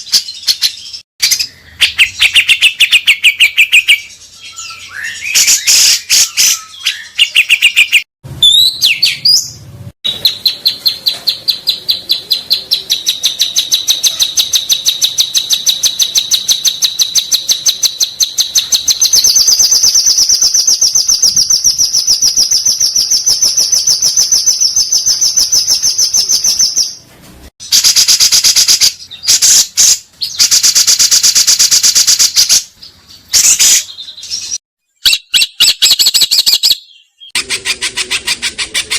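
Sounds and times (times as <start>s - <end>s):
songbird trilling: 0.3s - 27.0s.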